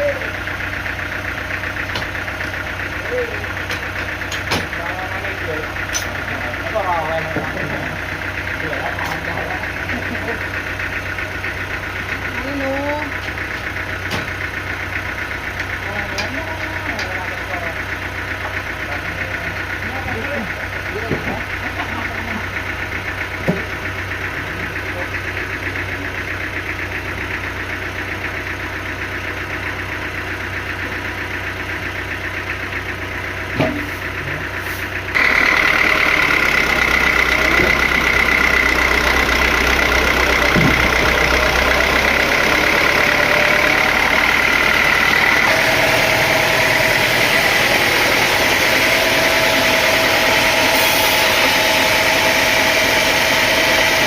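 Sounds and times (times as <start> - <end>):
engine drone: 0.0 - 54.0
sawmill machinery running: 0.0 - 54.0
high steady whine: 35.2 - 54.0.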